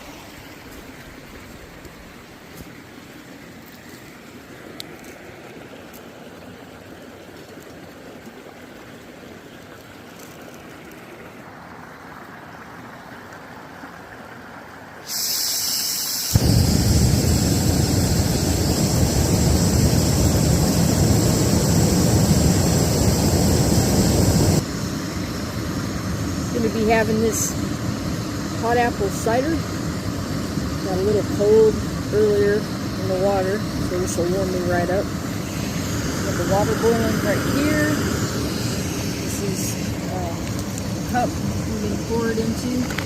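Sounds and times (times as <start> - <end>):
creek flowing faintly: 0.0 - 15.1, 24.6 - 43.0
camping stove roaring: 15.0 - 43.0
gas hissing: 15.0 - 43.0.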